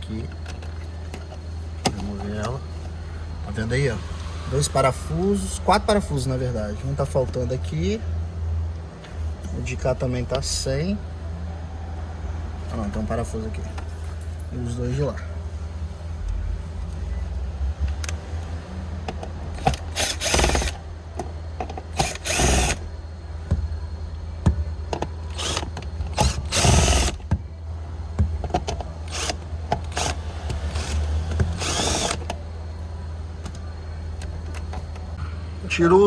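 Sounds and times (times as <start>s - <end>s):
steady low hum: 0.0s - 36.0s
electric screwdriver running: 19.6s - 20.8s, 22.0s - 22.8s, 25.3s - 27.2s, 29.1s - 32.3s.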